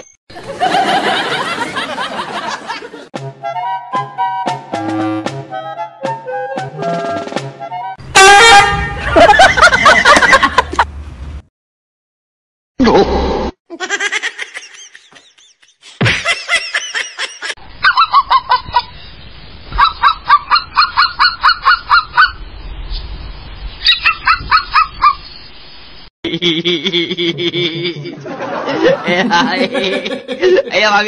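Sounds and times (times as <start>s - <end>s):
dog giving honking yelps: 8.2s - 9.7s, 17.8s - 18.5s, 19.8s - 22.4s, 23.8s - 25.2s.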